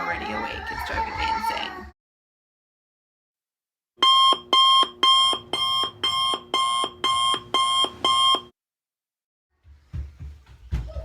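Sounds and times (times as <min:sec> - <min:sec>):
alarm clock ringing: 0:04.0 - 0:08.5.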